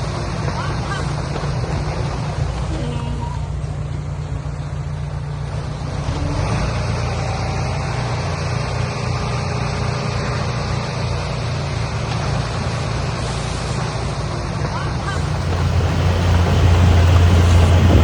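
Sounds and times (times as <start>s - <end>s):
broad rushing noise: 15.0s - 18.0s
diesel engine humming: 15.0s - 18.0s.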